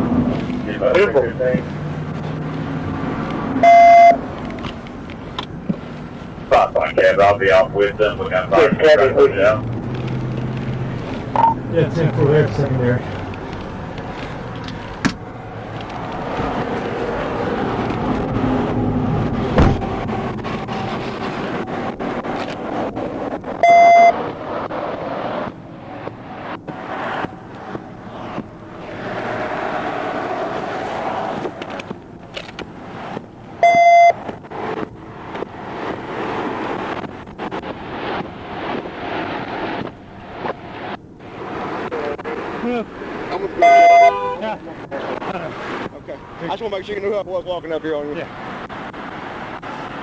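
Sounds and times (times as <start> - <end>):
road vehicle noise: 0.0 - 50.0
traffic: 0.0 - 50.0
wind: 0.0 - 50.0
loud electronic beep: 3.6 - 4.2, 11.4 - 11.6, 23.6 - 24.2, 33.6 - 34.2, 43.6 - 44.2
loud knock: 19.5 - 19.8.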